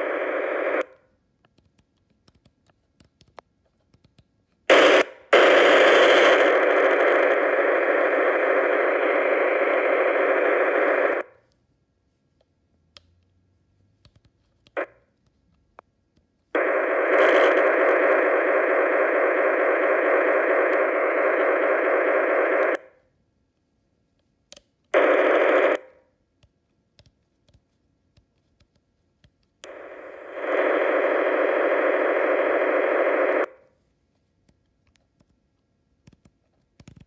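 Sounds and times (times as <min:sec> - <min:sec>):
radio static hiss: 0:00.0 - 0:00.9, 0:04.7 - 0:11.3, 0:16.6 - 0:22.9, 0:25.0 - 0:25.9, 0:29.6 - 0:33.6.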